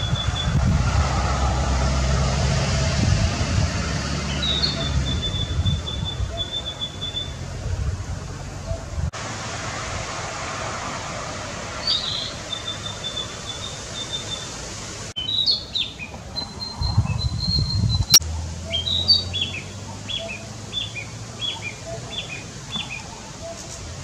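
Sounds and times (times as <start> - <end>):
bird singing trills and whistles: 0.0 - 0.6, 4.3 - 7.4, 11.8 - 14.5, 15.2 - 23.7.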